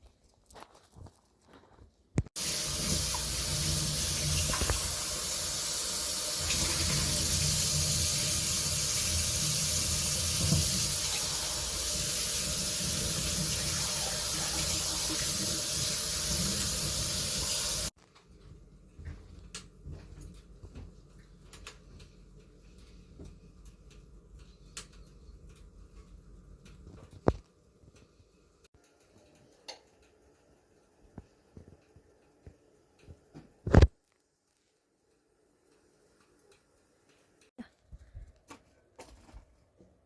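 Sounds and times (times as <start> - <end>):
running water rushing: 2.4 - 17.9.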